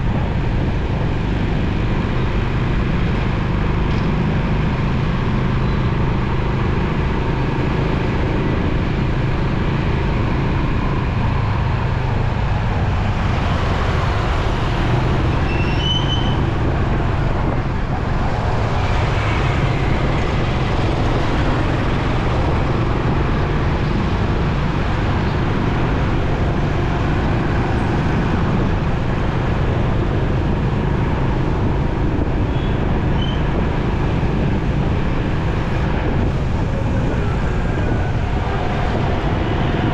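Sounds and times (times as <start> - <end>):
road and traffic noise: 0.0 - 39.9.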